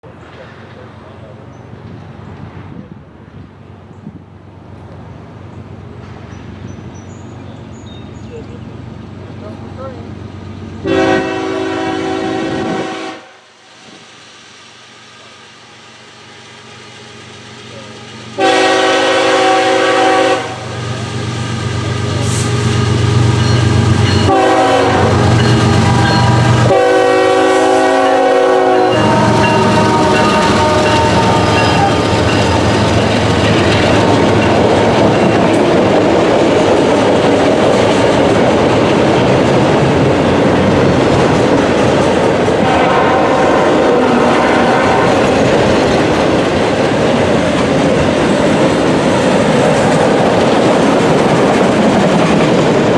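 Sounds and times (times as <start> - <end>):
train rumbling past: 0.0 - 52.9
train air horn blasts: 10.8 - 13.6, 18.4 - 33.1, 42.6 - 45.6.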